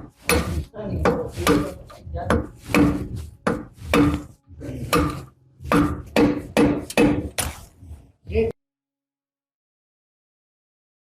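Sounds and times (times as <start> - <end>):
hammer striking metal: 0.0 - 7.7.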